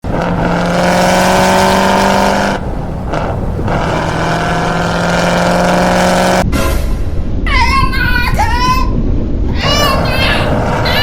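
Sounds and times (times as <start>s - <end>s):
vehicle engine at high revs: 0.0s - 6.4s, 9.6s - 11.0s.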